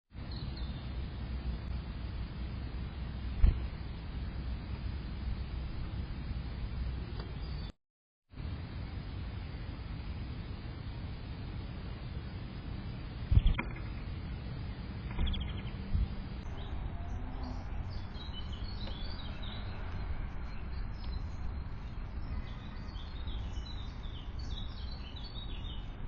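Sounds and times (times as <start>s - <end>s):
low background rumble: 0.2s - 7.7s, 8.4s - 26.0s
small birds chirping: 7.0s - 7.8s, 13.3s - 26.0s.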